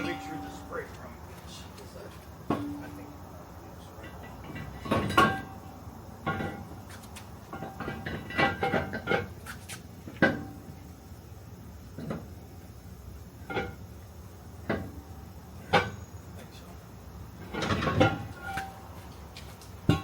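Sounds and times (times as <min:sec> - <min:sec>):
metal brake drum clanking: 0:00.0 - 0:00.9, 0:02.4 - 0:09.4, 0:10.0 - 0:10.8, 0:17.3 - 0:18.9.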